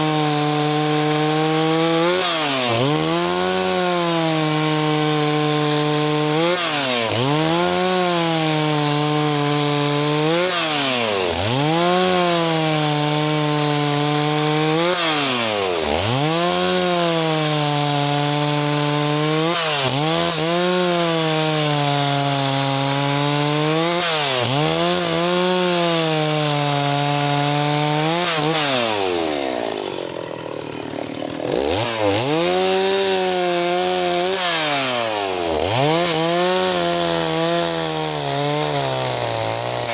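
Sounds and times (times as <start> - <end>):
chainsaw running at high revs: 0.0 - 39.9.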